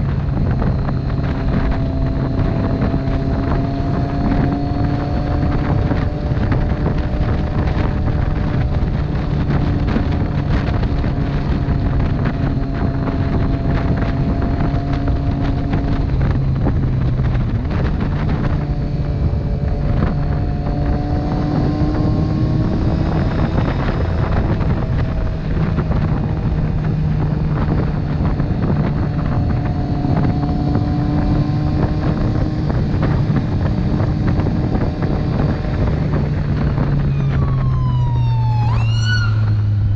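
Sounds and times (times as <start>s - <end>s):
motorcycle engine running: 0.0s - 37.7s
wind noise on microphone: 0.0s - 39.9s.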